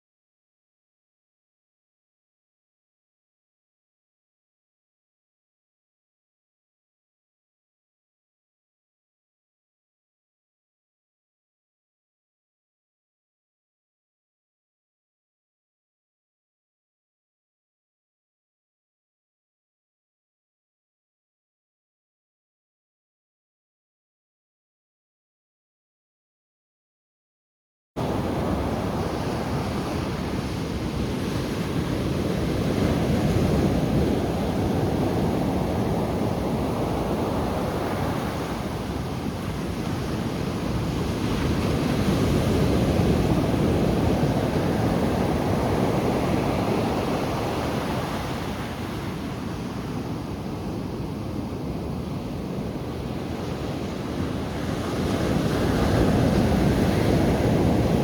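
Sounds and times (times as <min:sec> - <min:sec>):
ocean surf washing onto shore: 0:28.0 - 0:58.0.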